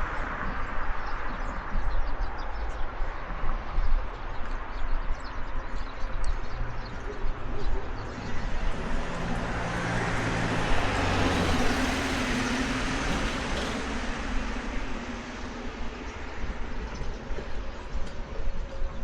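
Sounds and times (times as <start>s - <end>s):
vehicle passing: 7.5s - 17.7s.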